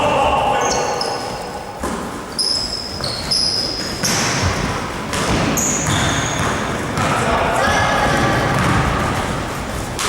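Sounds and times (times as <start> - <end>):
sneakers squeaking on floor: 0.0 - 10.0
basketball bouncing: 3.8 - 10.0.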